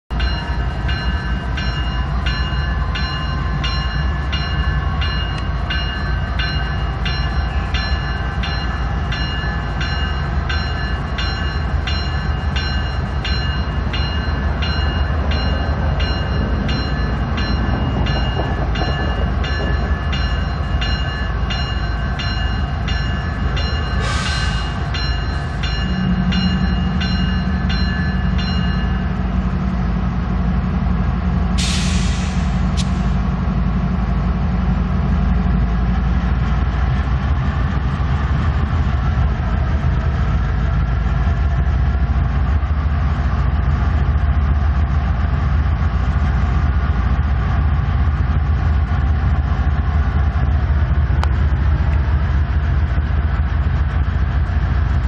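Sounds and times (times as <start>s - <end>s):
locomotive bell ringing: 0.1s - 50.4s
locomotive engine rumble: 0.1s - 55.0s
short hiss: 31.6s - 33.2s.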